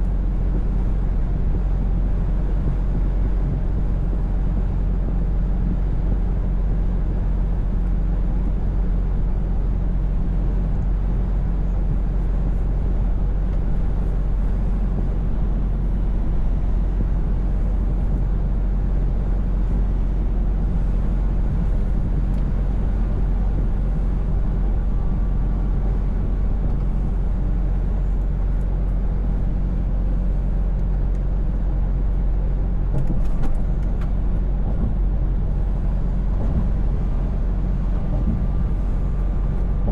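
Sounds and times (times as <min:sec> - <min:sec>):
truck engine droning: 0:00.0 - 0:39.9
tyre and road noise: 0:32.7 - 0:39.9.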